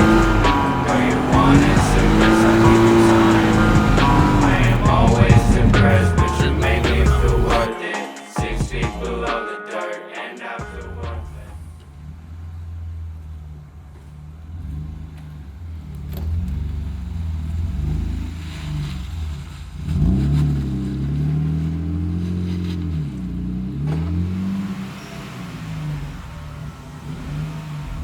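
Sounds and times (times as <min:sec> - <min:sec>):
car engine revving: 0:00.0 - 0:07.7, 0:10.7 - 0:28.0.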